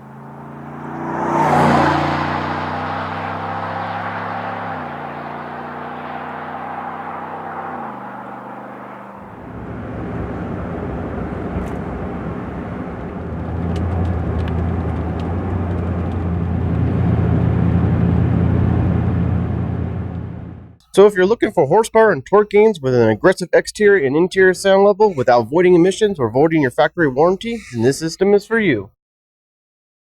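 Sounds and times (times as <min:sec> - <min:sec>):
truck exhaust note: 0:00.0 - 0:28.2
low rumble: 0:09.3 - 0:20.8.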